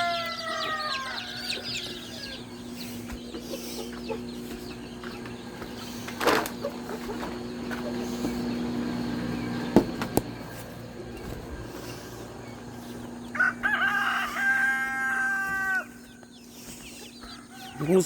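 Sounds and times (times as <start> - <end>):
rooster crowing: 0.0 - 2.8, 12.9 - 16.3, 17.1 - 18.0
steady low hum: 0.0 - 18.0.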